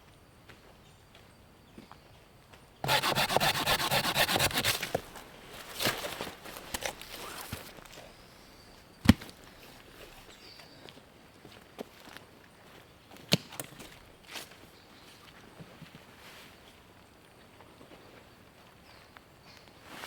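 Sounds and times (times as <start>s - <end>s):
quiet scrapes: 2.8s - 5.0s
hand saw cutting wood: 2.8s - 5.2s.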